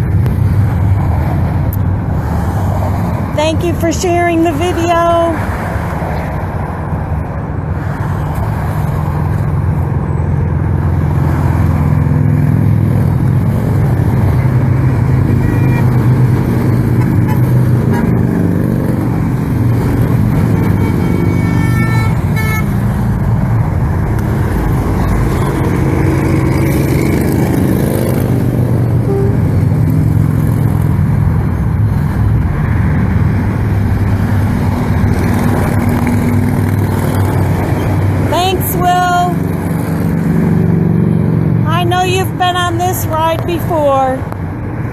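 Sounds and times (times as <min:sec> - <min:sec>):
motorcycle engines droning: 0:03.3 - 0:44.7
horn honks: 0:15.3 - 0:16.1, 0:16.9 - 0:18.2, 0:20.3 - 0:23.0, 0:29.0 - 0:29.7.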